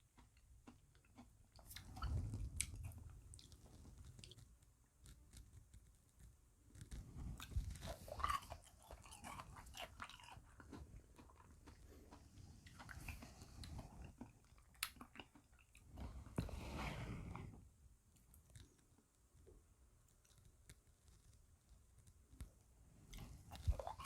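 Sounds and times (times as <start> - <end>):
chewing and crunching ice cream: 0.0 - 5.8, 6.8 - 16.5, 23.0 - 24.0.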